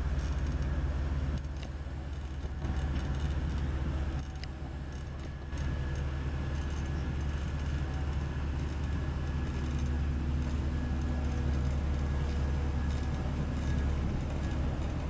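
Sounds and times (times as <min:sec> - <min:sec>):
diesel engine droning: 0:00.0 - 0:15.0.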